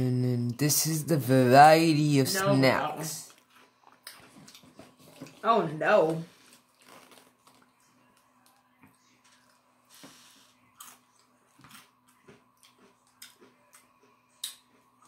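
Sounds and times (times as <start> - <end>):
chewing potato chips: 3.2 - 5.4, 6.4 - 9.7, 10.6 - 15.0.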